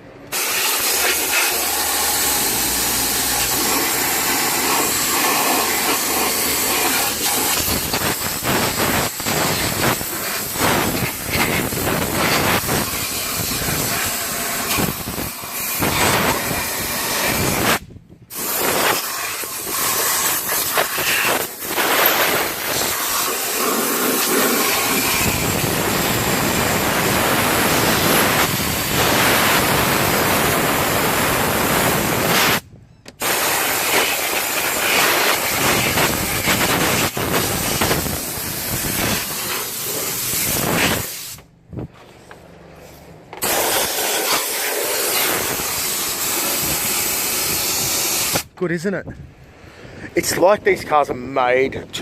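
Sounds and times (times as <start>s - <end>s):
air blow gun hissing: 0.3s - 32.6s, 33.2s - 41.5s, 43.4s - 48.5s.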